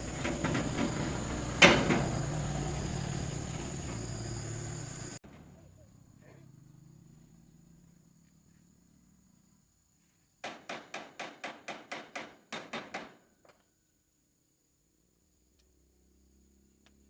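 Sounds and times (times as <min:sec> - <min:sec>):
rapid hammering: 0:10.4 - 0:13.2.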